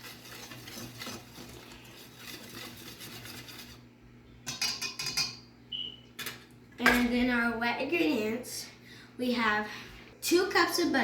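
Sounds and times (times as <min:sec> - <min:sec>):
whisk scraping in a bowl: 0:00.0 - 0:03.9.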